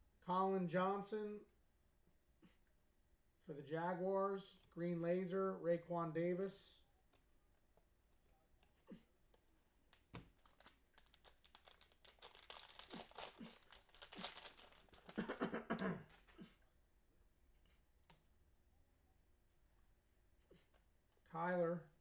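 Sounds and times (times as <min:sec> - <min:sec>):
cellophane wrapper crinkling: 0:09.3 - 0:16.3.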